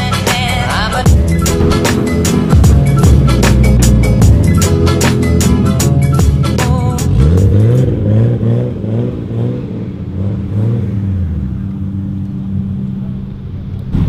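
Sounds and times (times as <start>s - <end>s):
music: 0.0s - 7.9s
car engine revving and idling: 0.0s - 14.0s.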